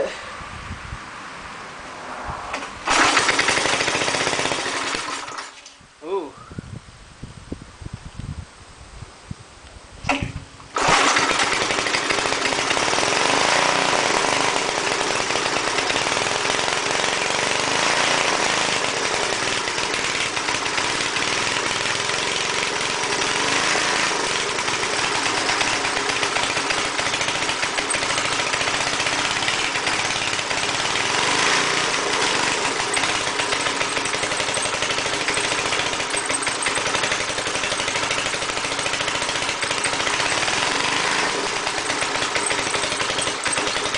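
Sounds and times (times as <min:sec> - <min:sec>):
person talking: 0:00.0 - 0:00.3, 0:06.0 - 0:06.5
air compressor engine running: 0:02.5 - 0:05.4, 0:10.0 - 0:43.9.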